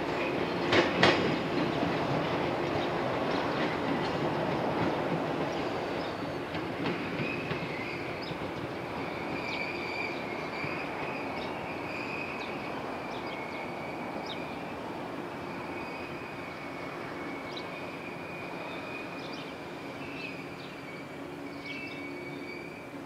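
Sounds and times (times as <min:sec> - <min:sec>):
train rumble: 0:00.0 - 0:23.0
high-pitched wheel squeal: 0:20.3 - 0:22.9.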